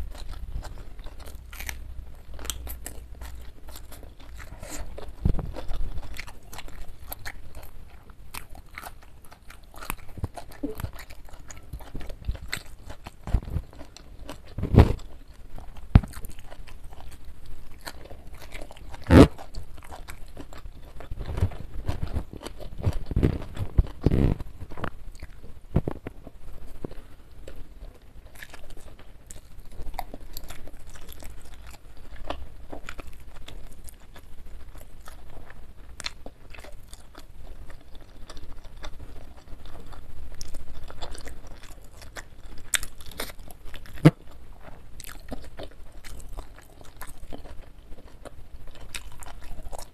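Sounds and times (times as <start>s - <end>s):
chewing and crunching food: 0.0s - 49.9s
wet mouth sounds: 8.4s - 27.1s.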